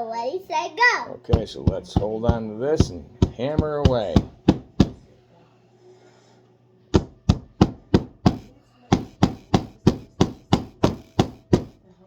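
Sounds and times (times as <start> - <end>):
hammer striking nails into wood: 1.3 - 5.0, 7.0 - 11.8.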